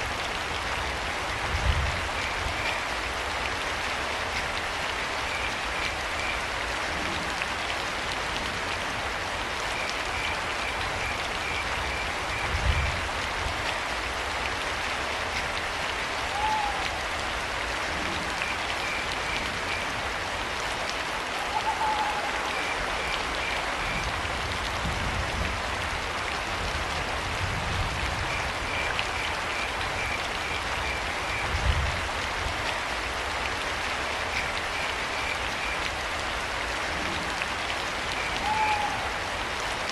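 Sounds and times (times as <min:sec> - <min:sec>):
steady rain: 0:00.0 - 0:39.9
owl hooting: 0:16.3 - 0:17.0, 0:21.4 - 0:22.4, 0:38.3 - 0:39.1.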